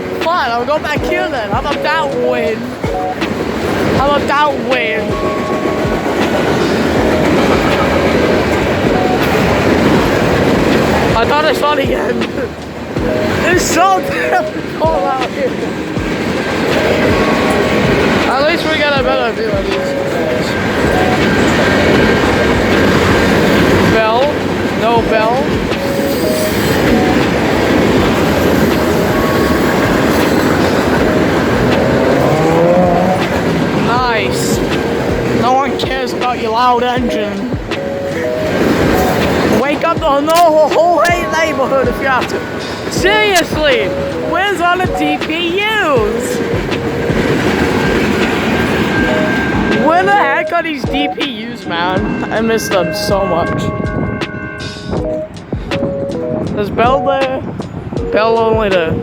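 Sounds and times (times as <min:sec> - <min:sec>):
train wheels on rails: 0:00.0 - 0:59.0
rising engine tone: 0:25.8 - 0:35.7
wind on microphone: 0:51.9 - 0:59.0.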